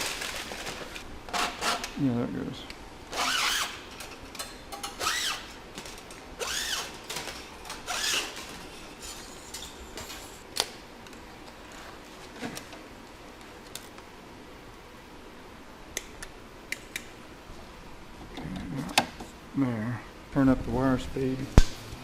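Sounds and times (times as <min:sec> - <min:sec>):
welder wire-feed motor running: 0:03.1 - 0:03.8, 0:05.0 - 0:05.5, 0:06.4 - 0:08.5.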